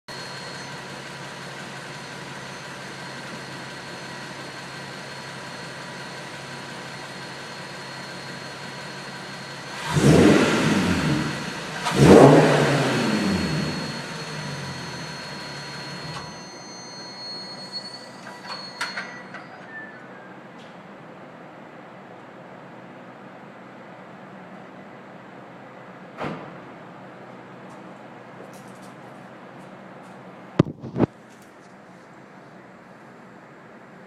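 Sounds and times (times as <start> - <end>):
car engine idling and revving: 0.1 - 16.4.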